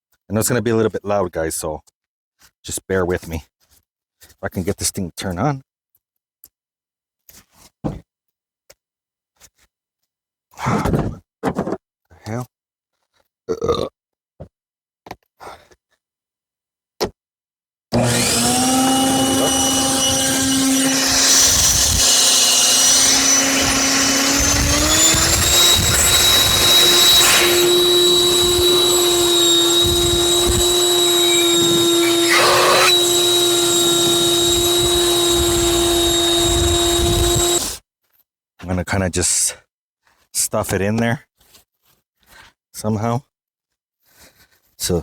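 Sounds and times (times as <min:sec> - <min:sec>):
leaf blower whine: 0:18.0 - 0:37.8.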